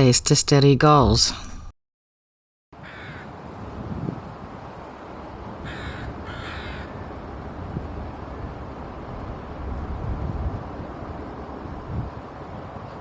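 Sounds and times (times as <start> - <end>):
harsh bird calls: 5.6 - 7.2.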